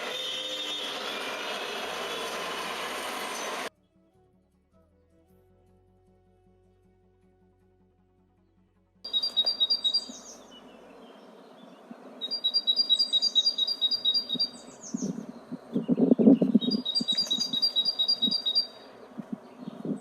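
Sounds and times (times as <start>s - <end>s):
birds chirping in rapid trills: 9.1s - 20.0s.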